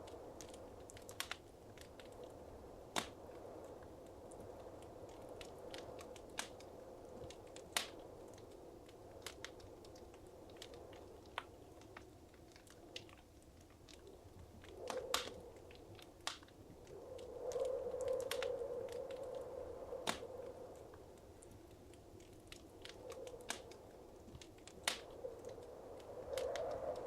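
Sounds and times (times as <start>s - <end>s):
wood fire crackling: 0.0s - 27.0s
hiss of flames: 24.4s - 27.0s.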